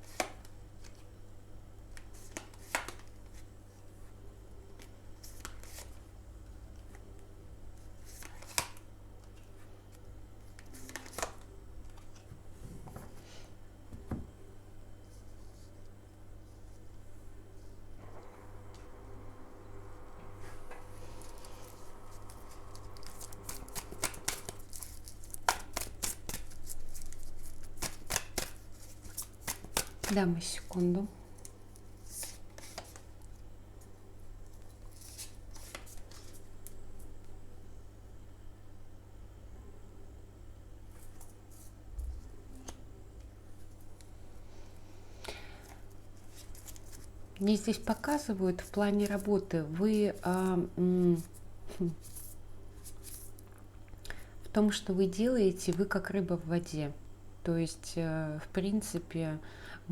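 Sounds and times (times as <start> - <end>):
cards being shuffled: 0.0 - 1.1, 1.9 - 3.5, 4.8 - 6.0, 7.8 - 12.3, 20.8 - 37.1, 45.6 - 53.5
low steady hum: 0.0 - 59.9
sharp card snaps: 22.9 - 30.2.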